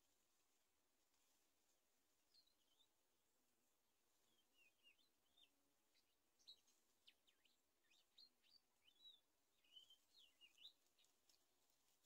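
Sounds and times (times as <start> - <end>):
faint high bird chirps: 4.2 - 11.4.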